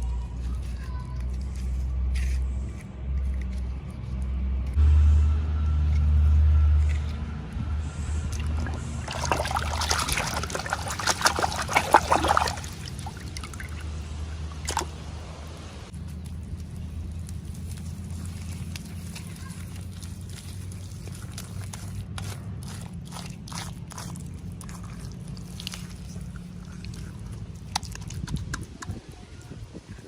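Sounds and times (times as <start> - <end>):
hands moving objects rumble: 6.8 - 30.0.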